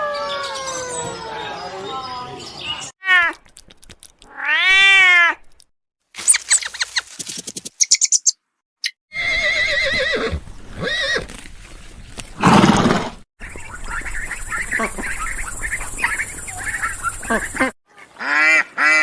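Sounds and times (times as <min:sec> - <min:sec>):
animal calls with high chirps: 0:00.0 - 0:02.9, 0:06.2 - 0:07.0, 0:13.4 - 0:17.7
horse whinny: 0:09.1 - 0:11.3, 0:12.4 - 0:13.2.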